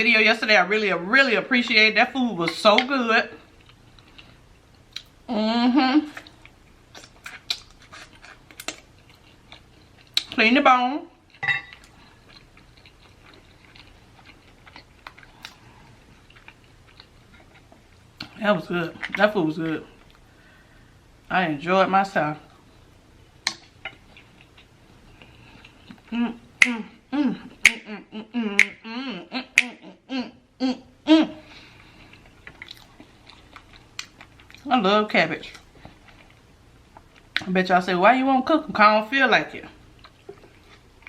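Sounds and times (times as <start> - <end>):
chewing: 3.4 - 5.2, 6.1 - 10.4, 11.2 - 19.3, 23.4 - 26.8, 31.4 - 34.7, 35.4 - 37.5, 39.9 - 41.0
woman vocalizing wordless tune: 5.3 - 6.2, 26.1 - 31.5.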